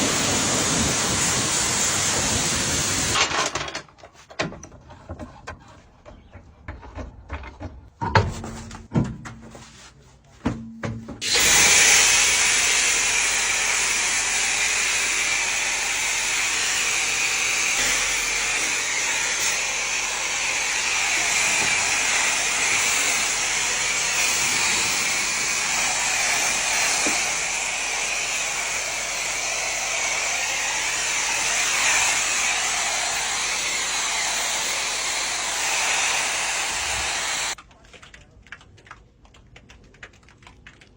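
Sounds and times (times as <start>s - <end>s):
motorised machine hissing: 11.2s - 37.6s.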